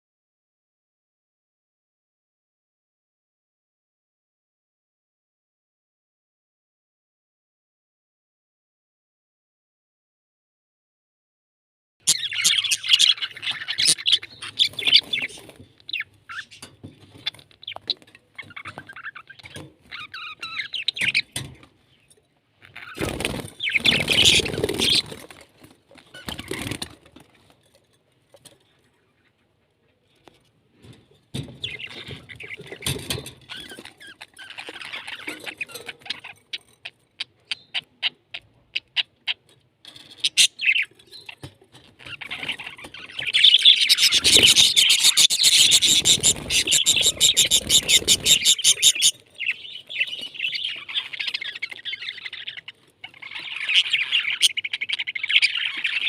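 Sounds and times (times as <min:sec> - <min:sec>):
parrots chirping and chattering: 0:12.1 - 0:56.0.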